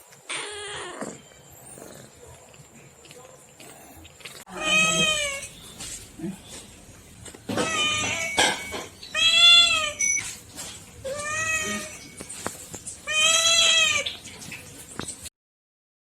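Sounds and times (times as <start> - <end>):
cat meowing: 4.5 - 5.6, 7.5 - 10.2, 11.0 - 12.2, 13.0 - 14.2.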